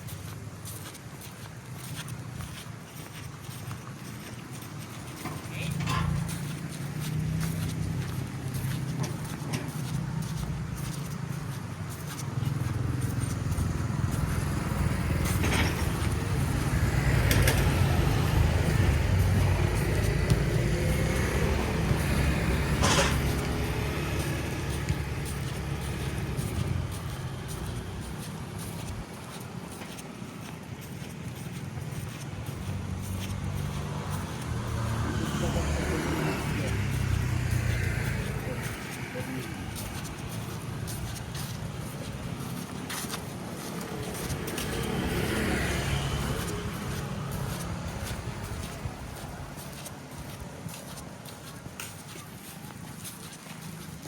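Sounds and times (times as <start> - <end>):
passing vehicle engine rumble: 5.1 - 51.8
car driving past: 12.7 - 28.9, 32.6 - 41.4, 43.7 - 48.8.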